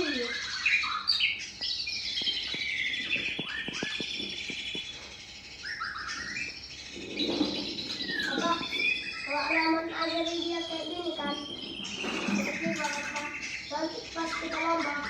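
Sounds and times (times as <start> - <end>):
bird singing chirps and warbles: 0.0 - 15.0.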